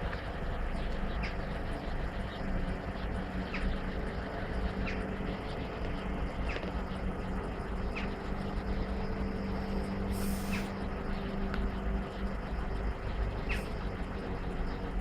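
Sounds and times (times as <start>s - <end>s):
low engine hum: 0.0s - 15.0s
faint bird chirps: 0.4s - 5.7s, 7.8s - 15.0s
short air hiss: 10.1s - 10.7s.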